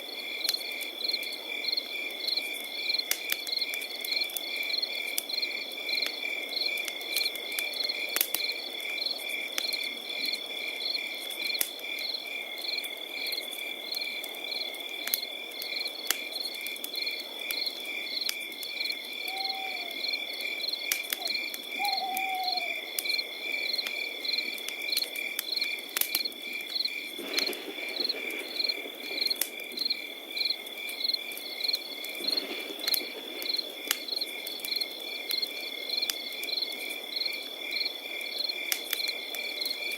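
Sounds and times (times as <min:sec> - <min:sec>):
campfire crackling: 0:00.0 - 0:39.9
crickets chirping: 0:00.0 - 0:39.9
short falling frog calls: 0:19.2 - 0:20.0, 0:21.2 - 0:22.9.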